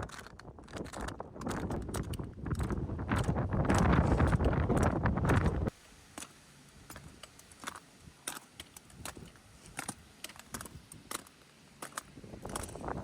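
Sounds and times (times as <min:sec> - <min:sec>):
wind buffeting microphone: 0:00.0 - 0:05.7, 0:12.1 - 0:13.0.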